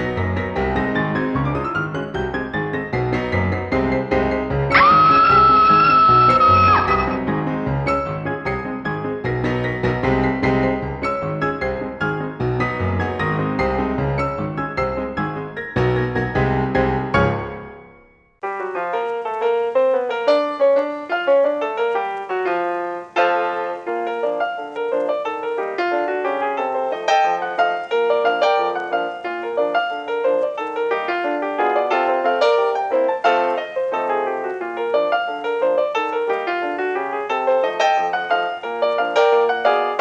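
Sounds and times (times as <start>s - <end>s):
ragtime piano music: 0.0s - 40.0s.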